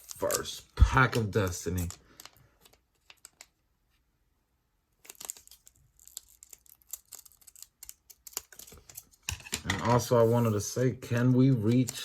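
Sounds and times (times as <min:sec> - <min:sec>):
foil wrapper tearing and crinkling: 0:00.0 - 0:03.5, 0:05.0 - 0:09.0.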